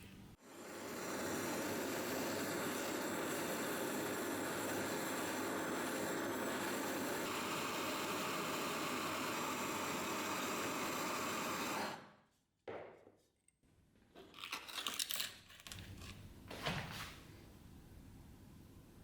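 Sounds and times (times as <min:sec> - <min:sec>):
electric power tool winding down: 0:00.7 - 0:12.0.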